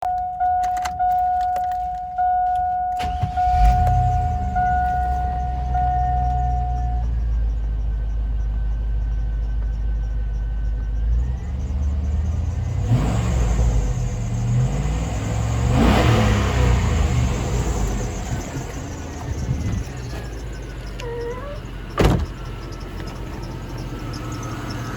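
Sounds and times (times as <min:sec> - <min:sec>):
dashboard warning chime: 0:00.0 - 0:13.2
engine cranking and starting: 0:03.0 - 0:07.2, 0:11.2 - 0:24.9
engine revving: 0:03.0 - 0:09.2, 0:09.9 - 0:24.9
engine idling: 0:03.0 - 0:24.9.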